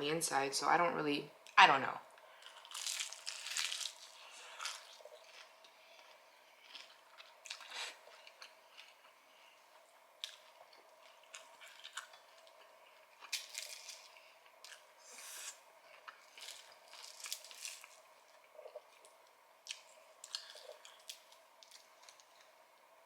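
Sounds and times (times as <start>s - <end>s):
fried chicken crunching: 2.5s - 7.7s, 13.2s - 14.8s, 16.1s - 18.1s, 19.6s - 22.3s
wet chewing: 19.6s - 22.5s.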